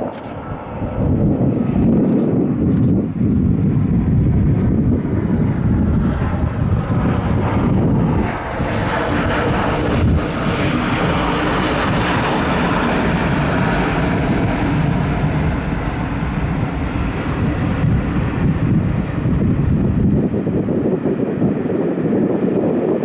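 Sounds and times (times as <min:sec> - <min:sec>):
jet airliner landing: 0:00.0 - 0:23.0.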